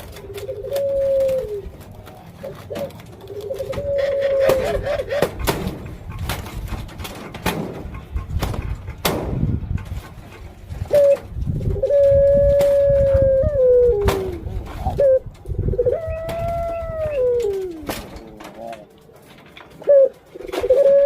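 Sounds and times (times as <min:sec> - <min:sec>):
dove cooing: 0:00.0 - 0:07.2, 0:10.7 - 0:21.0
sharp clicks and knocks: 0:01.8 - 0:11.5.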